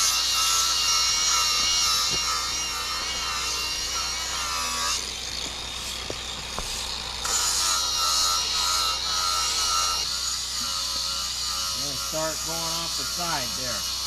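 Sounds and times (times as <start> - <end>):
power saw cutting wood: 0.0 - 14.0.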